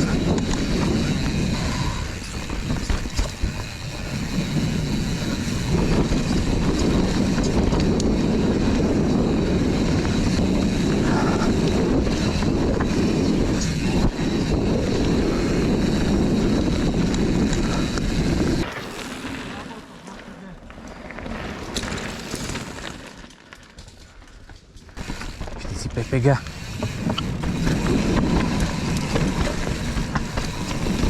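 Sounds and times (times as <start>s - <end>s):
wind on microphone: 0.0s - 18.7s, 25.0s - 31.0s
bike frame rattling: 0.0s - 31.0s
bike tyres rolling on dirt: 0.0s - 31.0s.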